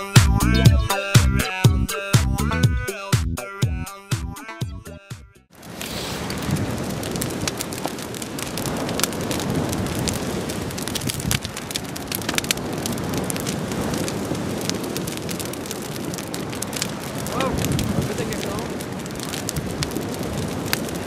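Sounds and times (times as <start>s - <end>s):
bonfire crackling and popping: 5.5s - 21.0s.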